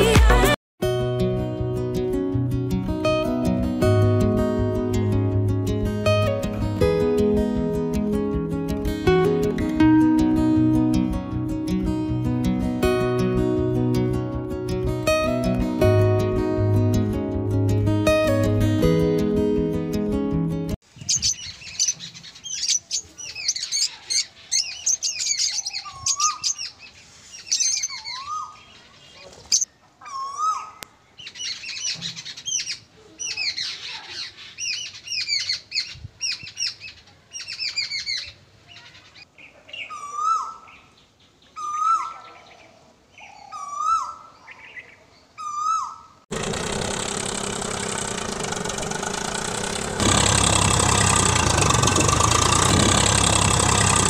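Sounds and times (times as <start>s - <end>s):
songbirds chirping and whistling: 20.9s - 46.2s
engine-like drone: 46.3s - 54.0s.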